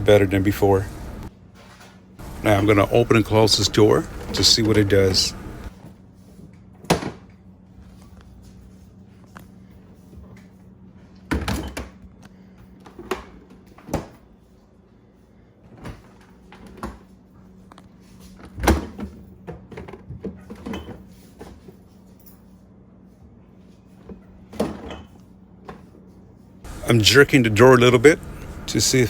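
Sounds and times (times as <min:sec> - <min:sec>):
faint steady hum: 0:00.0 - 0:01.3, 0:02.2 - 0:05.7, 0:26.7 - 0:29.0.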